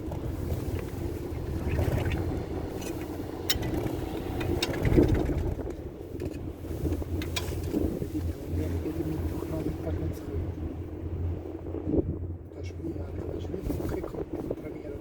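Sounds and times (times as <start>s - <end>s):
chairlift low rumble: 0.0s - 15.0s
wind on microphone: 0.0s - 15.0s
loud clatter: 3.5s - 5.8s.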